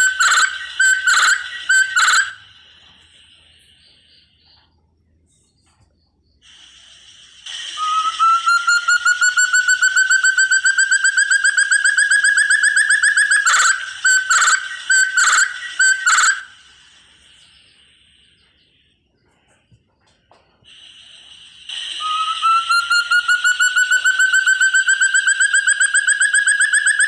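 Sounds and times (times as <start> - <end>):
partridge whistled calls: 0.0 - 4.8, 5.5 - 19.6, 20.7 - 27.0.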